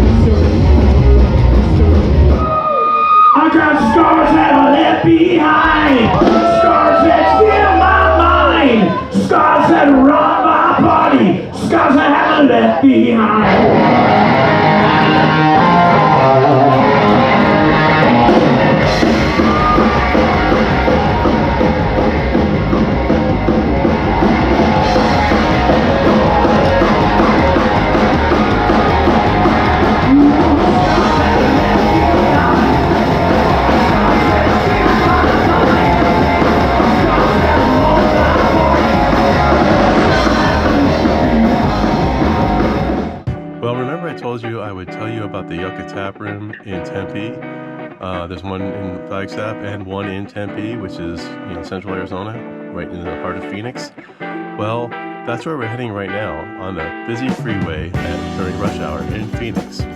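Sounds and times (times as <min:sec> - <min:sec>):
live rock band playing: 0:00.0 - 0:59.9
person singing: 0:25.2 - 0:42.2.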